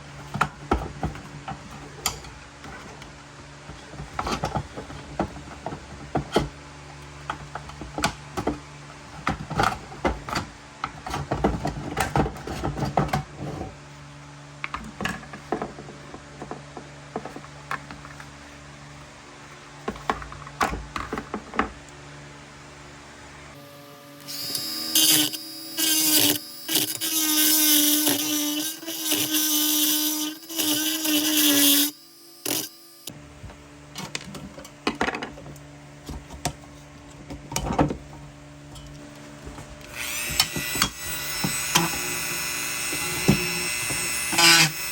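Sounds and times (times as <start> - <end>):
small power tool running: 23.6 - 33.2, 39.8 - 44.9.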